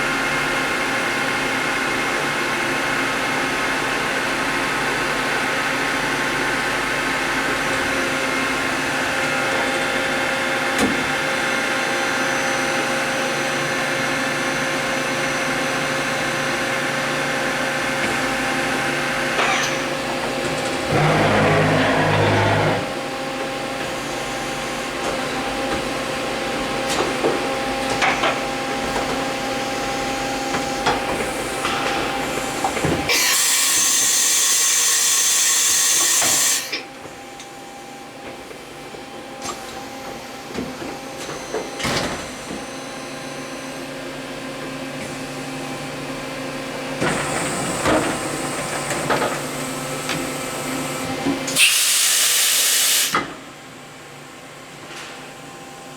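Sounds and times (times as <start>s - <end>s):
machine running: 20.8s - 23.1s.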